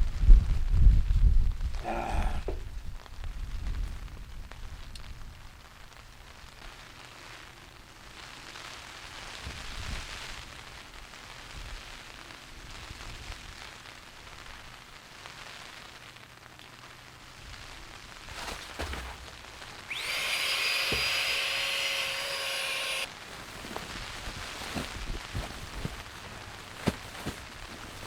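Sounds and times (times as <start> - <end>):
low rumble of wind: 0.0 - 6.9, 23.2 - 28.0
steady rain falling: 4.2 - 18.4.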